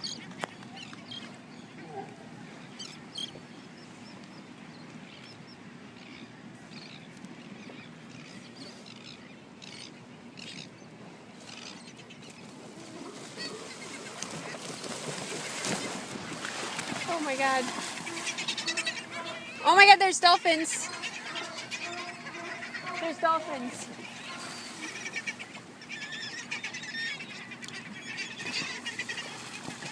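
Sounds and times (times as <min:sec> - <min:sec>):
wind and water hiss: 0:00.0 - 0:26.6, 0:27.6 - 0:29.9
high animal calls: 0:16.9 - 0:27.6.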